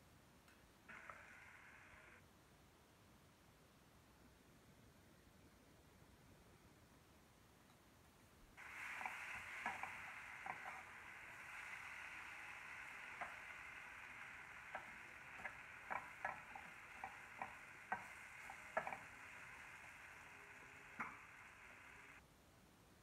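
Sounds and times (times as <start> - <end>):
food sizzling in a pan: 0.9 - 2.2, 8.6 - 22.2.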